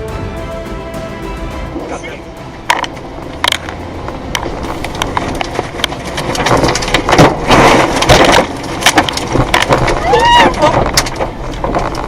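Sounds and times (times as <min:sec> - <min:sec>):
storm wind rushing: 0:01.5 - 0:12.0
debris cracking and clattering: 0:02.7 - 0:12.0.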